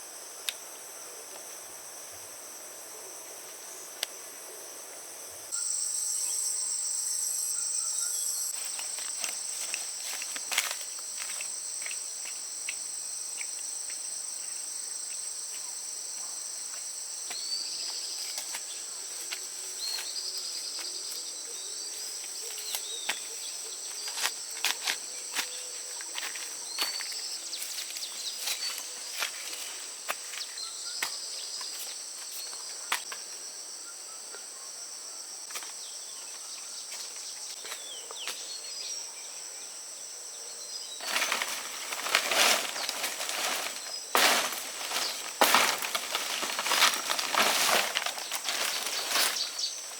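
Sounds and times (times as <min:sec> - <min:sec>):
insect chorus: 0:00.0 - 0:49.9
clicks and rustles: 0:41.0 - 0:49.9.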